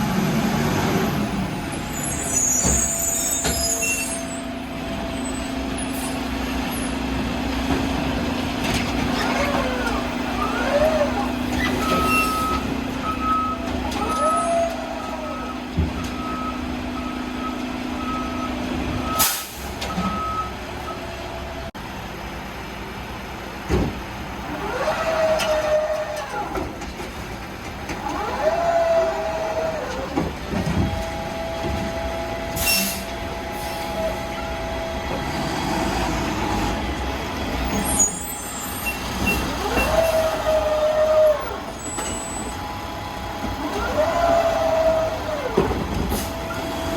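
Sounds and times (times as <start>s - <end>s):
diesel engine running: 0.0s - 46.9s
hydraulic arm whining: 8.7s - 17.1s, 24.4s - 26.8s, 27.9s - 46.9s
air brake hisses: 19.2s - 19.8s, 32.6s - 34.1s.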